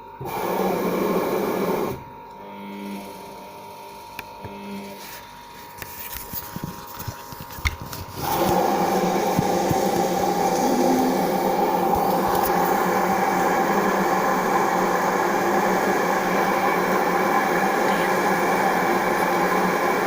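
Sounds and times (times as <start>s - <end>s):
washing machine humming: 0.0s - 20.0s.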